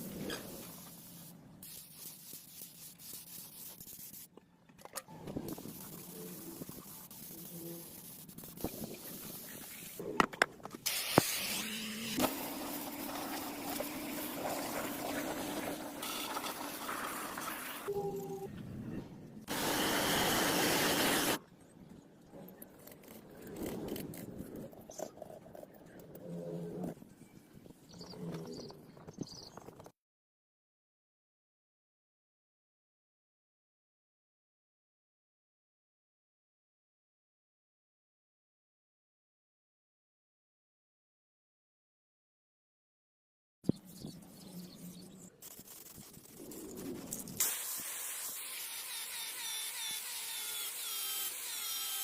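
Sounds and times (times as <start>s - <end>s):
loud spray-like hiss: 10.9s - 12.3s, 47.4s - 49.2s
faint clicks and scrapes: 21.9s - 27.0s.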